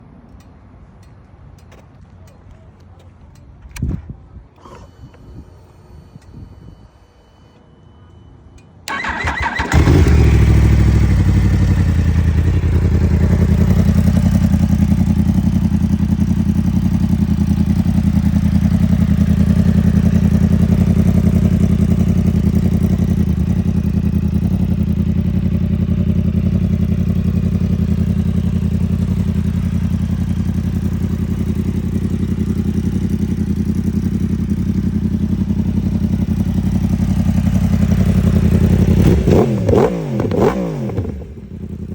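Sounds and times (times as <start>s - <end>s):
motorcycle starter cranking: 4.6s - 6.4s, 8.9s - 12.4s
motorcycle engine idling: 8.9s - 41.9s.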